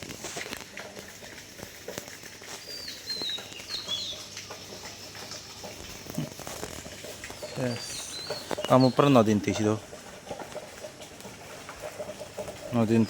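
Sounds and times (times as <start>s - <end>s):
bird chirping: 2.6s - 4.3s, 7.4s - 9.4s.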